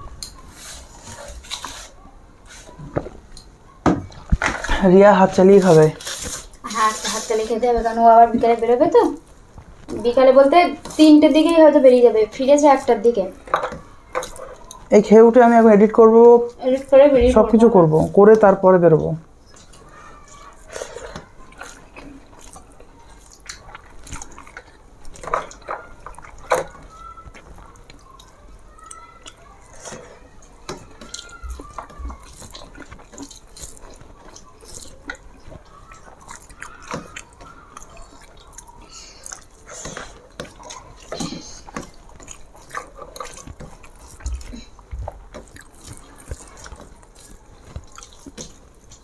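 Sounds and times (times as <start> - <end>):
food mixed by hand: 0.0 - 49.0
chewing: 8.3 - 15.0, 19.0 - 49.0.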